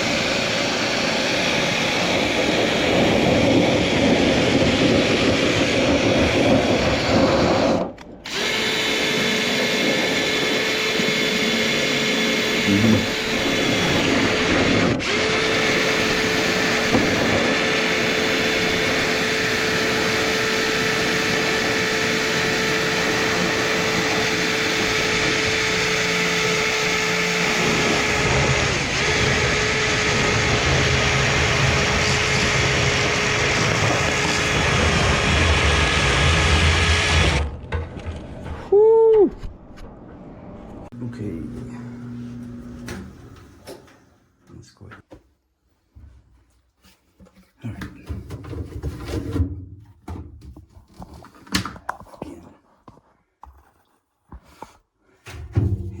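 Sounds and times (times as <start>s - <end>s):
power drill running: 0.0s - 37.5s, 41.0s - 43.6s.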